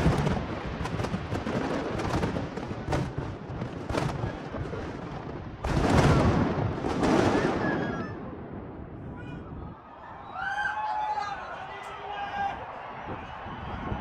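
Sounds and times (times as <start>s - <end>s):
fireworks crackling: 0.0s - 9.1s
fireworks bangs: 0.0s - 9.7s.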